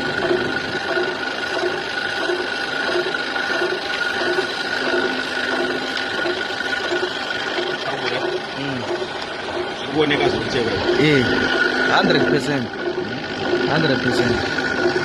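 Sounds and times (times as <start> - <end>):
low rhythmic pulse: 0.0 - 15.0
metal lathe gear whine: 0.0 - 15.0.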